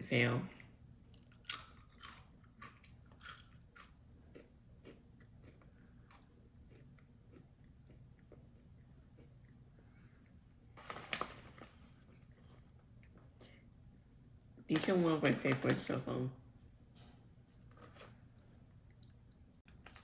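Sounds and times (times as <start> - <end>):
chewing: 1.1 - 10.4
crunching chips: 1.2 - 9.3.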